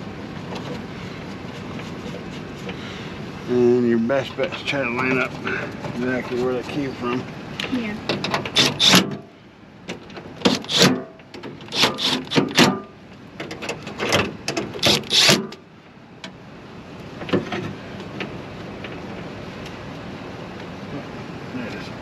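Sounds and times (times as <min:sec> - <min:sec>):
metal parts clicking and clanking: 0:09.9 - 0:15.6.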